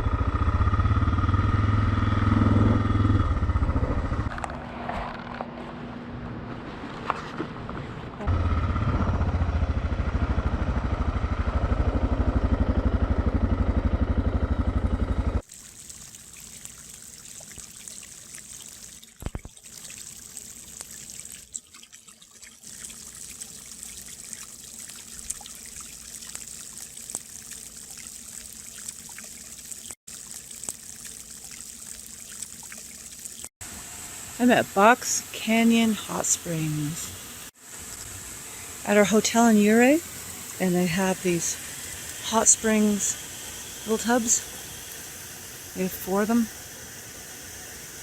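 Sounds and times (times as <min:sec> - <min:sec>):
motorcycle engine running: 0:00.0 - 0:04.4, 0:08.2 - 0:15.4
water trickling into a tub: 0:15.4 - 0:48.0.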